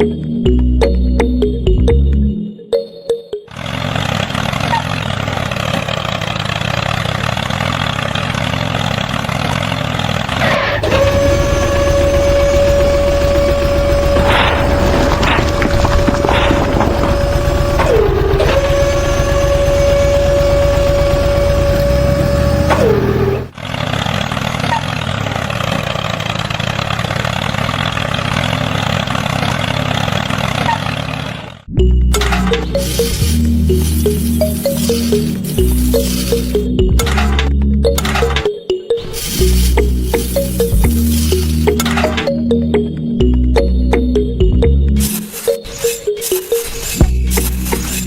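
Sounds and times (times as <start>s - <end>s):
engine idling with low throb: 3.5s - 38.5s, 39.4s - 45.2s, 47.0s - 48.0s
machine motor running: 3.6s - 24.4s, 32.2s - 38.4s
motor whine dropping in pitch: 10.8s - 23.5s.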